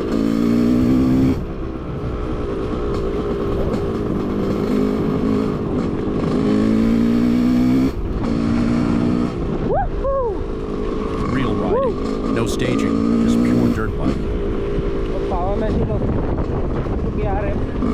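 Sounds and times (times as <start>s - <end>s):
dirt bike engine revving: 0.0s - 1.6s, 2.9s - 9.6s, 10.6s - 15.7s.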